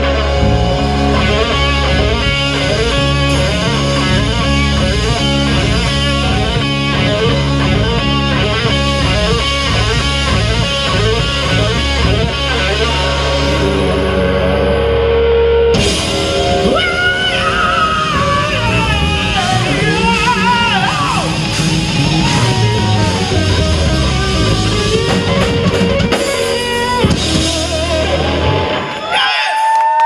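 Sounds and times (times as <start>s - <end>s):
distorted electric guitar: 0.0s - 29.2s
heavy rock band playing: 0.0s - 29.3s.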